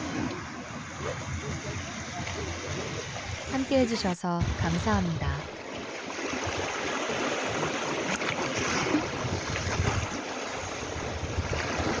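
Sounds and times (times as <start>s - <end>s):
wind gusting on microphone: 0.0s - 5.5s, 8.6s - 12.0s
sea waves washing onto shore: 0.0s - 12.0s.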